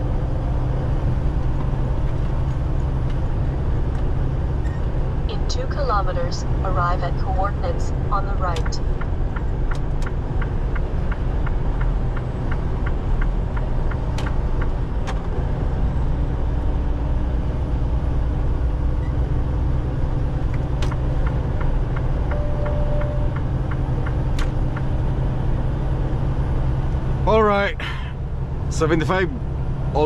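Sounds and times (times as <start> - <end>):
truck engine running: 0.0 - 30.0
turn signal ticking: 8.1 - 15.3, 20.3 - 25.0.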